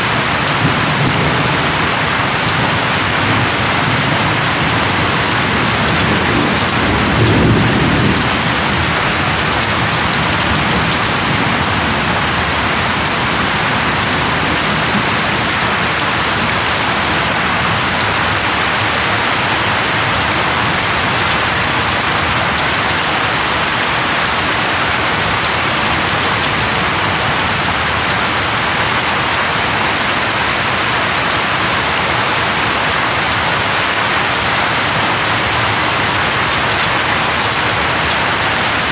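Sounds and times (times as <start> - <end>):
steady rain: 0.0 - 38.9
low rumble of thunder: 0.2 - 18.4.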